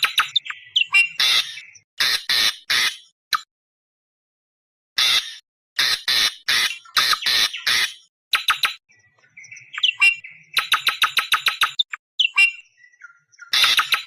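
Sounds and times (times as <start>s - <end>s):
fast chattering bird notes: 0.0s - 3.0s, 6.2s - 8.8s, 9.6s - 12.6s, 13.5s - 14.0s
bird lure calls screeching: 0.0s - 3.5s, 5.0s - 8.8s, 9.6s - 12.8s, 13.4s - 14.0s.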